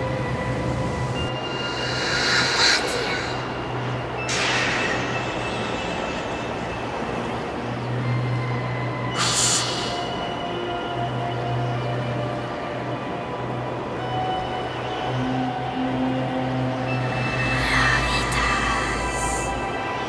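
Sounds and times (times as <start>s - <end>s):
noisy rumble drone: 0.0s - 7.9s, 16.7s - 20.0s
whooshes: 1.5s - 3.7s.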